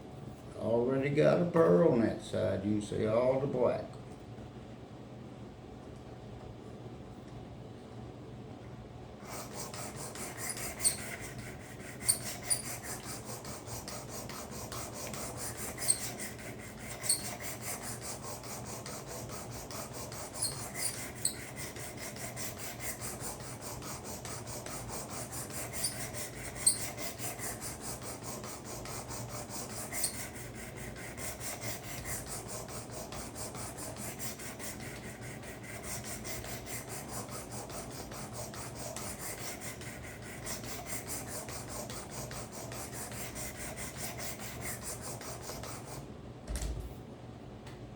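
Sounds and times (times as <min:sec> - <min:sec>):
knife rasping on abrasive: 0:09.3 - 0:40.0.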